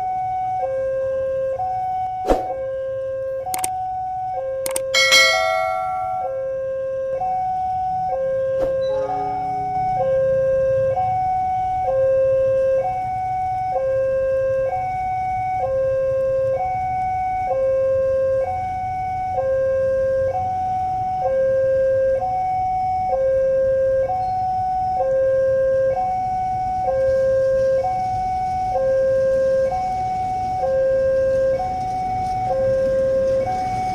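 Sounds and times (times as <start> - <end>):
level crossing two-tone alarm: 3.5 - 11.2.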